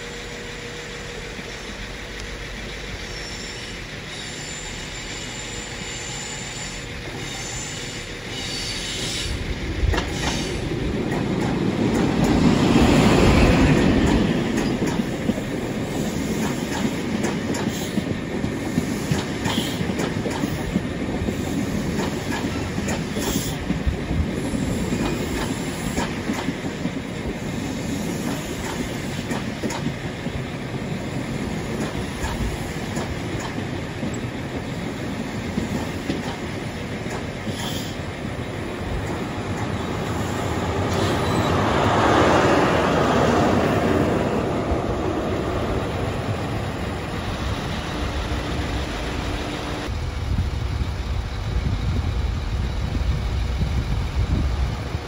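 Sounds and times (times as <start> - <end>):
diesel train engine: 0.0 - 55.0
short high squeaks: 40.9 - 41.6.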